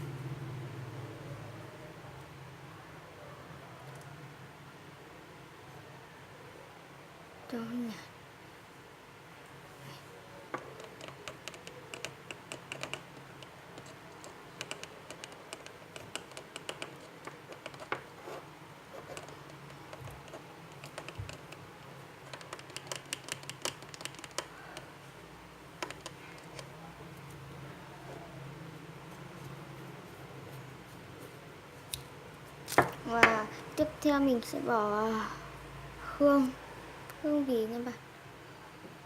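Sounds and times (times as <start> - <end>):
stirrer clicking and scraping container: 10.6 - 21.6, 22.2 - 24.6, 25.8 - 26.7.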